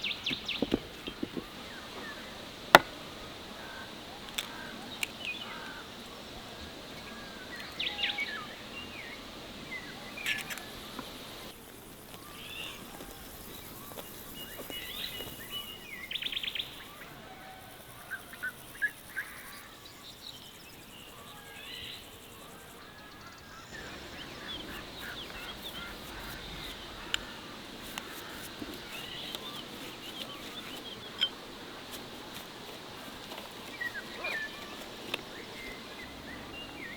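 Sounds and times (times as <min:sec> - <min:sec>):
small birds chirping and trilling: 0:06.9 - 0:36.9.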